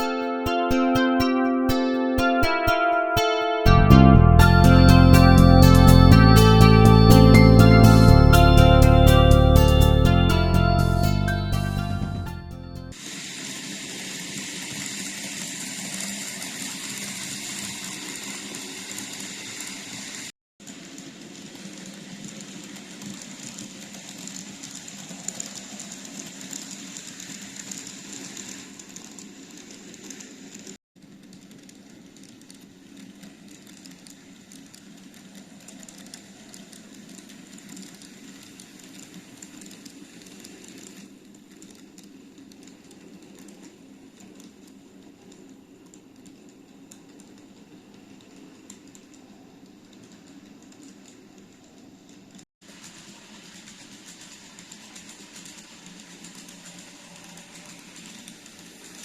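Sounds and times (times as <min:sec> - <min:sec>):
rapid clicking of wheels on rails: 0:12.9 - 0:59.0
model train motor hum: 0:13.0 - 0:49.3, 0:52.7 - 0:59.0.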